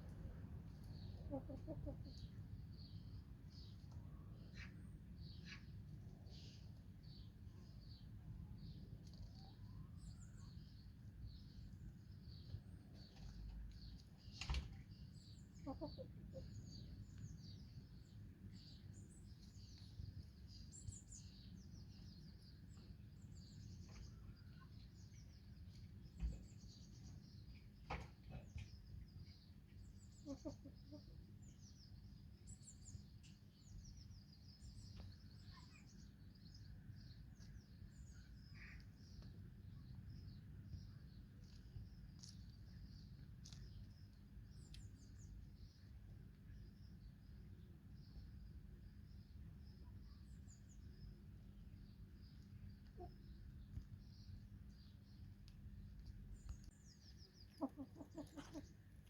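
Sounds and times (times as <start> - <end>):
small birds chirping: 0.2 - 59.0
hen clucking: 1.2 - 2.2, 57.5 - 58.7.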